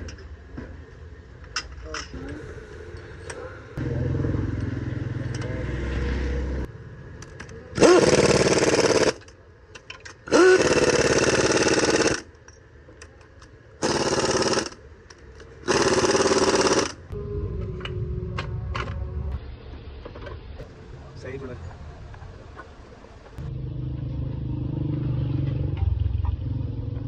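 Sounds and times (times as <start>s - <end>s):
low steady hum: 17.0s - 27.0s.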